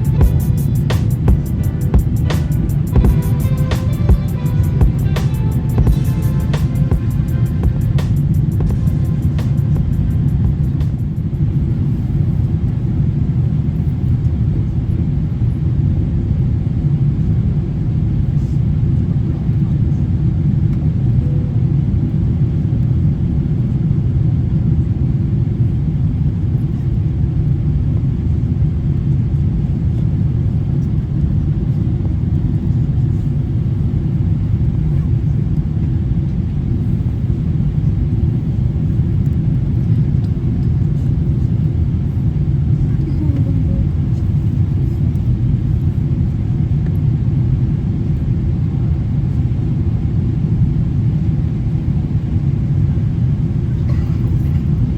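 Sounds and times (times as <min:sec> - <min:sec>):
airflow noise: 0:00.0 - 0:13.0
airplane cabin engine rumble: 0:00.0 - 0:54.9.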